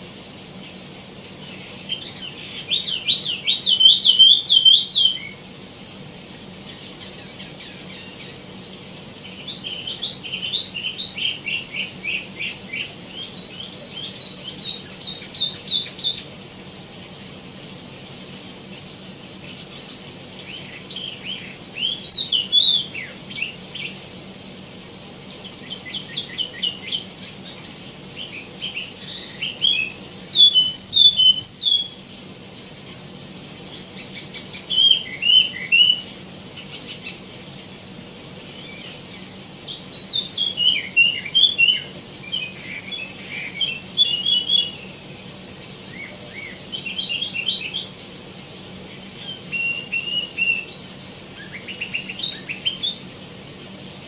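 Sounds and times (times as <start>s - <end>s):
songbird high chirping song: 1.3s - 5.6s, 6.6s - 8.5s, 9.2s - 16.4s, 18.8s - 24.0s, 25.5s - 32.1s, 33.7s - 37.2s, 38.4s - 48.0s, 48.9s - 53.1s.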